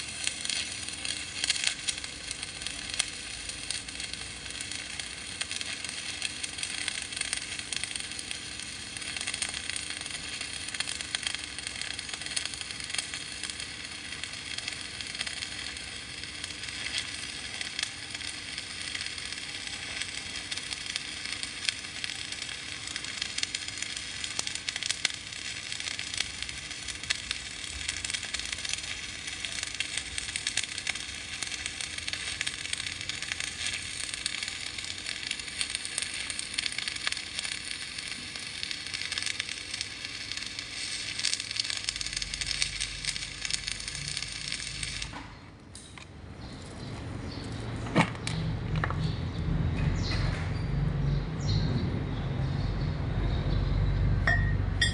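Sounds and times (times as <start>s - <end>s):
arc welding crackle and sizzle: 0.0s - 54.9s
low rumble: 48.4s - 54.9s.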